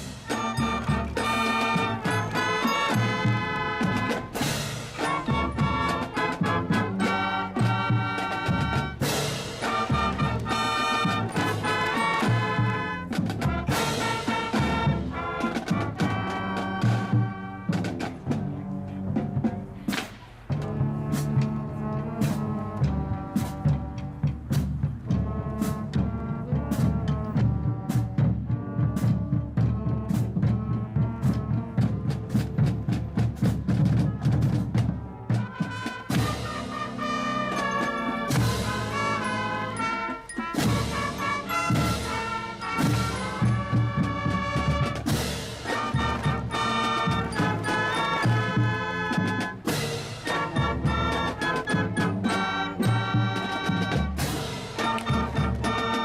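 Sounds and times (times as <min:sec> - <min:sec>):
loud brass chords: 0:00.0 - 0:17.8, 0:20.5 - 0:24.3, 0:34.0 - 0:56.0
drums beating quick rhythm: 0:00.0 - 0:56.0
live band playing: 0:00.0 - 0:56.0.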